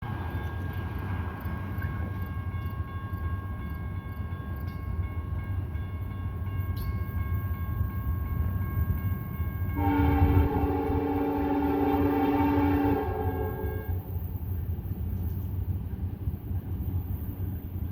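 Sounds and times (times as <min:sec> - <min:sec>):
freight train rumble: 0:00.0 - 0:17.9
locomotive air horn chord: 0:09.7 - 0:14.0.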